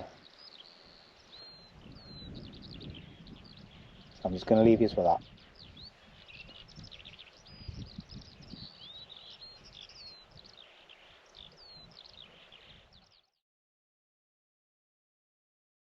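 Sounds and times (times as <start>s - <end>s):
small birds chirping: 0.0s - 13.4s
gusty wind rumble: 1.5s - 10.6s.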